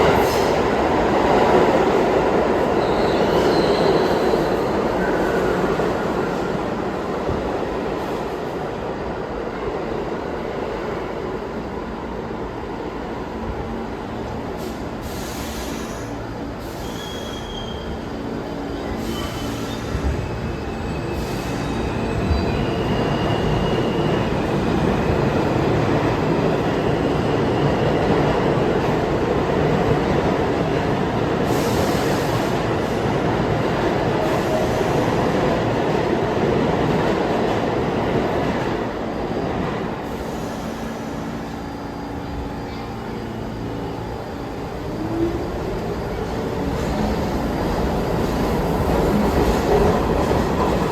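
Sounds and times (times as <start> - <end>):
subway train rumbling on rails: 0.0 - 50.9
faint high wheel squeals: 15.6 - 18.1.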